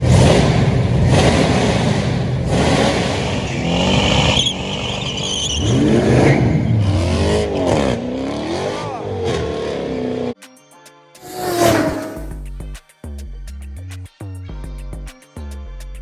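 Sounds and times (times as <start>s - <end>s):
car engine revving hard: 0.0s - 10.4s, 11.2s - 12.3s
high steady squeal: 2.8s - 8.0s.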